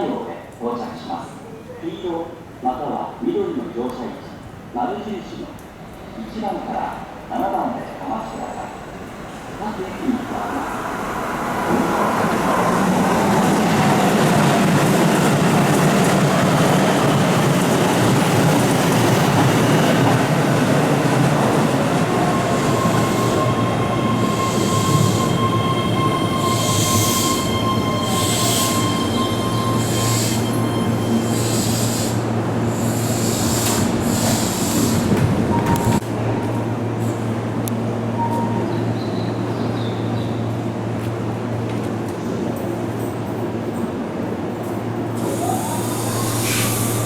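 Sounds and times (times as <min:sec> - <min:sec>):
electric train rolling: 0:08.4 - 0:38.4, 0:45.1 - 0:47.0
train wheels squealing: 0:22.0 - 0:35.1, 0:45.2 - 0:47.0.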